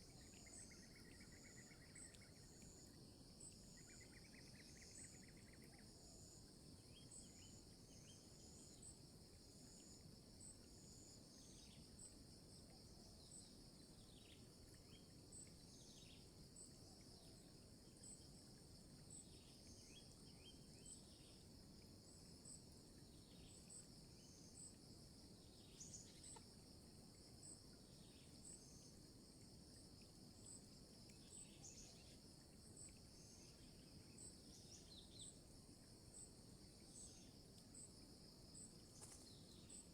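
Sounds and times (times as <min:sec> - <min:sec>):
insect buzz: 0:23.2 - 0:39.9.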